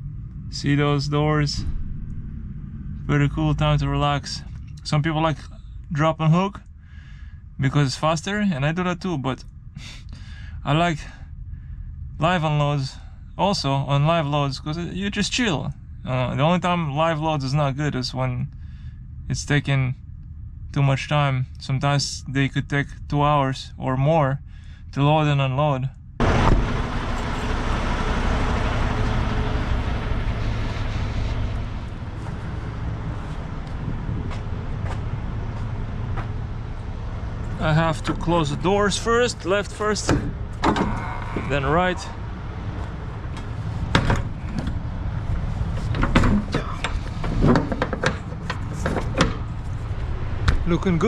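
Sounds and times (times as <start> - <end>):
diesel engine idling: 0.0 - 23.6, 26.2 - 51.0
metal truck doors knocking shut: 40.0 - 41.5, 43.9 - 44.8, 45.8 - 49.5.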